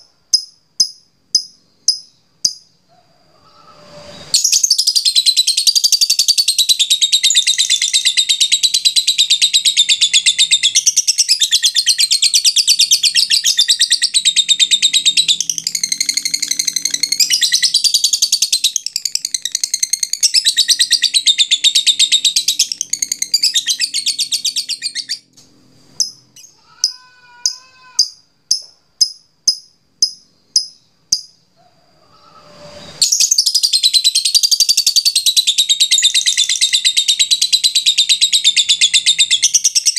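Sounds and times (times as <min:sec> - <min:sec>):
lovebird chattering: 0:04.4 - 0:25.2.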